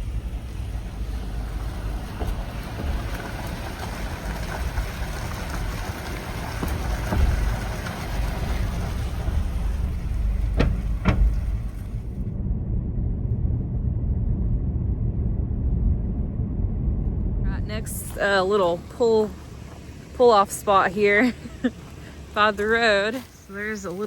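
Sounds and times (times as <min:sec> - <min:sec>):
car road rumble from inside: 0:00.0 - 0:24.0
short knocks: 0:00.8 - 0:12.2.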